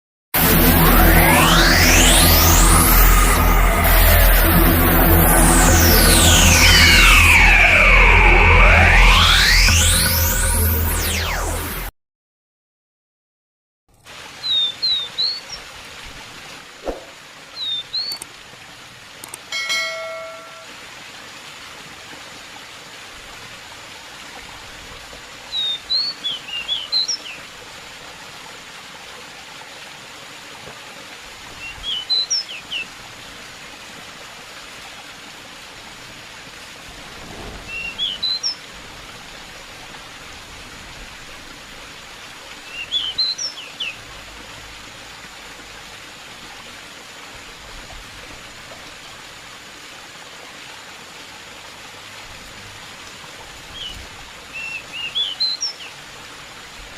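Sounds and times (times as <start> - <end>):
flowing water: 0.4 - 11.9, 13.9 - 56.9
bird twittering song: 37.5 - 38.6.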